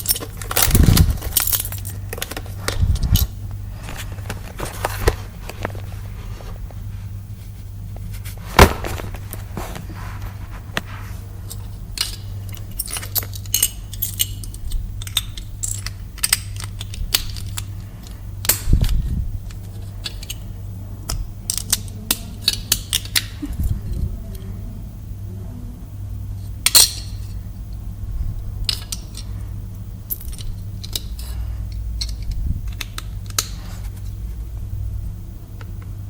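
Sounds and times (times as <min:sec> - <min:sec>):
plastic pieces clicking and rattling: 0:00.0 - 0:03.3, 0:11.5 - 0:20.5, 0:21.1 - 0:23.4, 0:30.1 - 0:31.3
low steady hum: 0:00.0 - 0:36.0.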